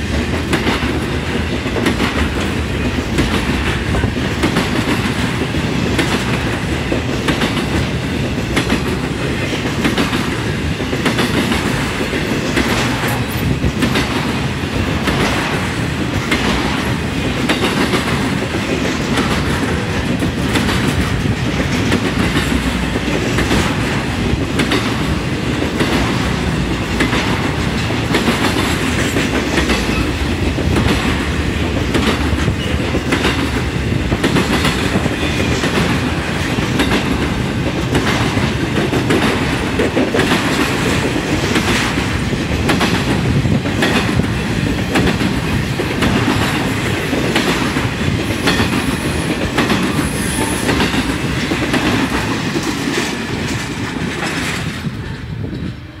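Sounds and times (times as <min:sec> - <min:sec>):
wheels clacking over rail joints: 0:00.0 - 0:55.9
freight train wheels rumbling: 0:00.0 - 0:56.0.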